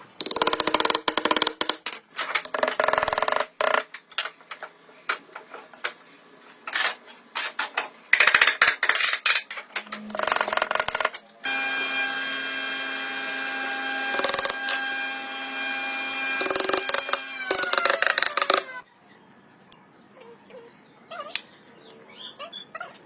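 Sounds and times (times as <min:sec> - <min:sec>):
power tool whining: 0:11.4 - 0:18.8.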